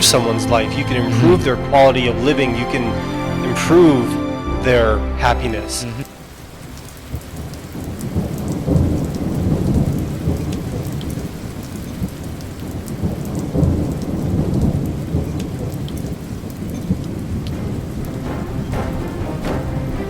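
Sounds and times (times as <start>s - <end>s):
steady rain: 0.0s - 20.0s
rolling thunder: 6.2s - 20.0s.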